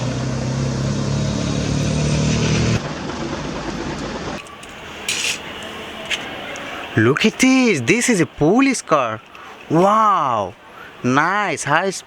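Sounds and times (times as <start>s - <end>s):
engine-like pulsing hum: 0.0s - 7.1s
quiet rushing noise: 2.8s - 12.0s.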